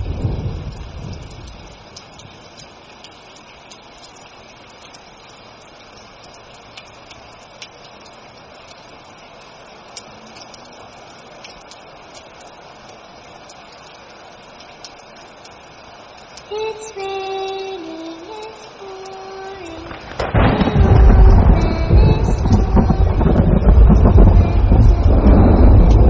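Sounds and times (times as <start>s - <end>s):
rain hiss: 0.0s - 26.0s
raindrops ticking: 0.0s - 26.0s.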